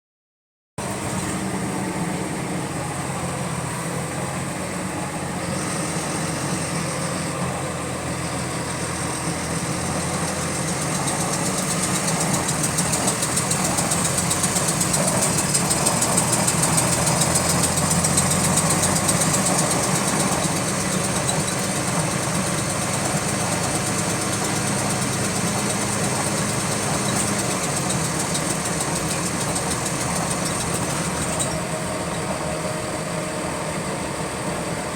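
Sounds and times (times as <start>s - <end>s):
bus engine running: 0.8s - 34.9s
rapid repetitive clicking: 9.9s - 31.6s.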